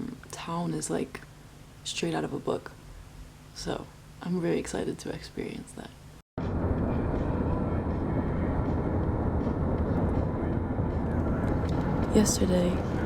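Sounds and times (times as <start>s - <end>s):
car driving on road rumble: 6.4s - 13.0s.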